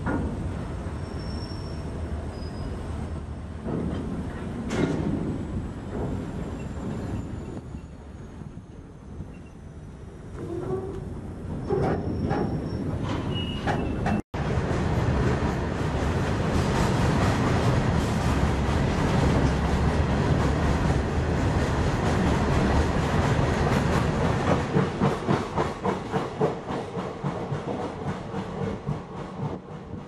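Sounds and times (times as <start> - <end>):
train wheels rumbling on rails: 0.0 - 30.0
wheels clacking over rail joints: 3.6 - 7.6.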